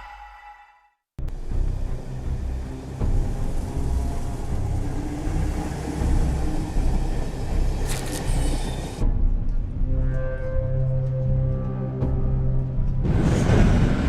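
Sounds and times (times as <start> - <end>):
train rumbling past: 1.4 - 9.0.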